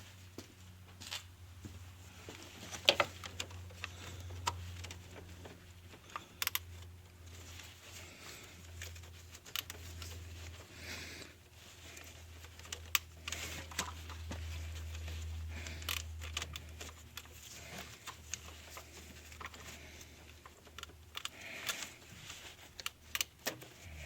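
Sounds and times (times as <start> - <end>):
low steady hum: 0.0 - 24.0
clicks of handling tools and parts: 11.9 - 23.8.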